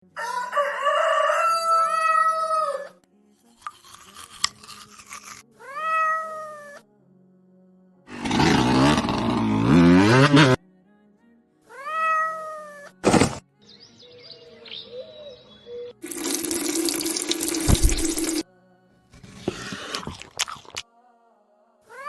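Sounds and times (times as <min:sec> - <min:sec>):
cat crying rough and low: 0:05.6 - 0:06.8, 0:11.7 - 0:13.0
cat meowing: 0:05.6 - 0:06.8, 0:11.7 - 0:13.0.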